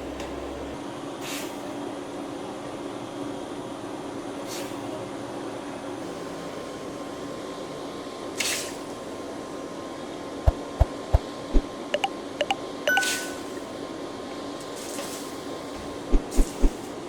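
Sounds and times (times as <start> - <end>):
forge blower rushing air: 13.2 - 17.0.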